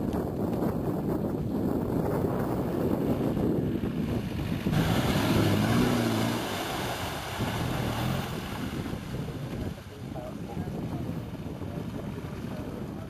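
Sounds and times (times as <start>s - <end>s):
wind buffeting microphone: 0.0s - 13.0s
car engine revving: 4.7s - 9.2s.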